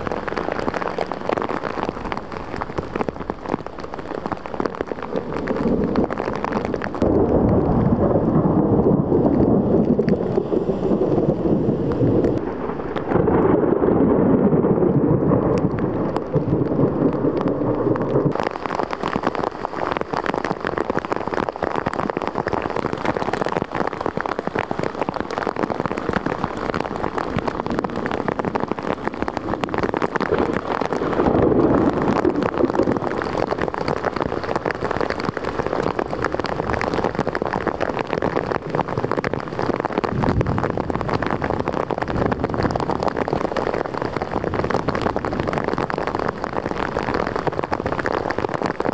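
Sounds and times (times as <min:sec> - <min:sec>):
heavy rain on hard surfaces: 0:00.0 - 0:48.9
low rumble: 0:04.8 - 0:18.5.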